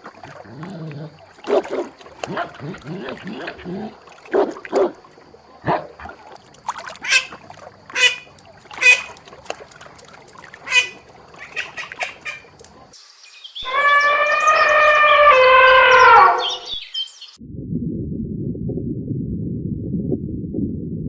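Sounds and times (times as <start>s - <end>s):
birds calling sharply: 7.0s - 9.3s, 10.0s - 13.0s
long falling bird call: 8.0s - 9.2s, 10.6s - 12.7s.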